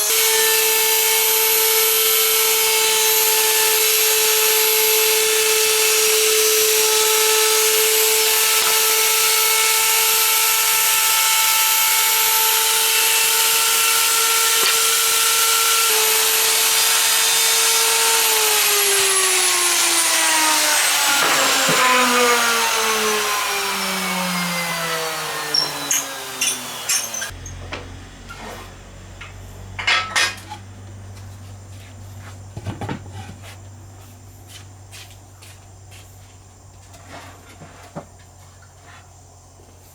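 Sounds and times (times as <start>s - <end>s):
power tool whining: 0.0s - 27.7s.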